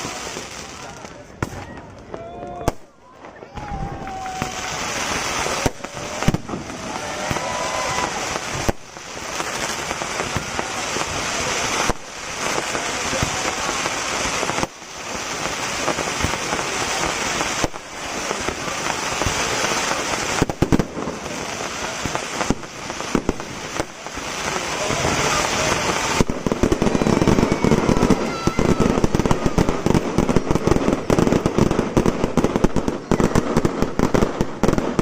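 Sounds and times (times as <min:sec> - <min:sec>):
fireworks bangs: 0:00.0 - 0:35.0
fireworks crackling: 0:00.0 - 0:35.0.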